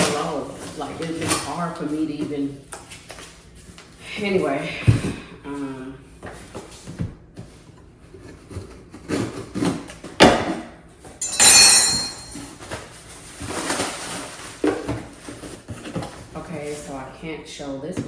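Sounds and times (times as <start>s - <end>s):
loud scraping or rustling: 11.2s - 17.0s.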